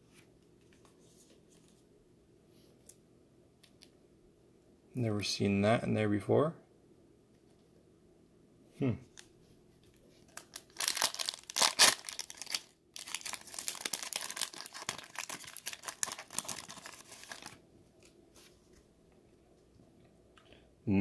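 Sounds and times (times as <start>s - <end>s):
wrapper crinkling: 9.1s - 18.1s
card pack wrapper tearing: 10.3s - 17.6s.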